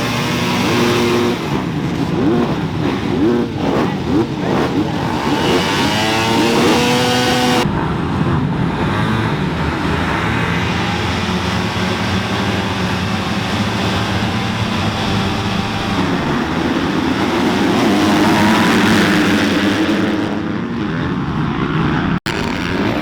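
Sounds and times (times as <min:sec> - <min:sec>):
dirt bike engines racing: 0:00.0 - 0:23.0.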